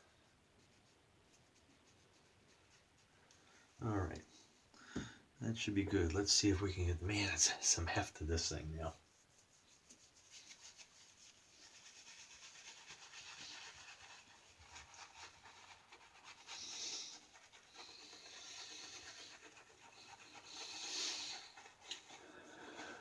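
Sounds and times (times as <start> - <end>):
shaving brush lathering soap: 5.6 - 23.0.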